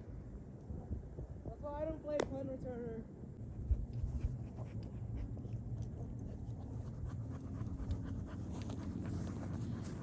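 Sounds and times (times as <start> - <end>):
steady low rumble: 2.8 - 10.0
dog panting: 3.6 - 10.0.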